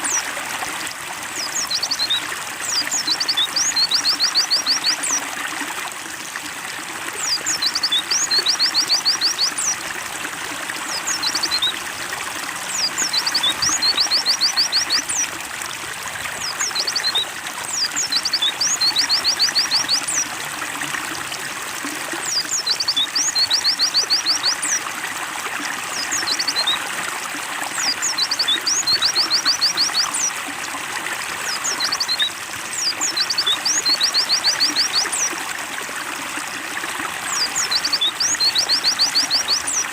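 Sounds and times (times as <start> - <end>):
water trickling: 0.0 - 39.9
bird singing high chirps: 1.4 - 5.2, 7.2 - 9.8, 12.7 - 15.3, 16.4 - 20.2, 22.2 - 24.8, 25.9 - 26.8, 27.8 - 30.3, 31.5 - 35.3, 37.3 - 39.9.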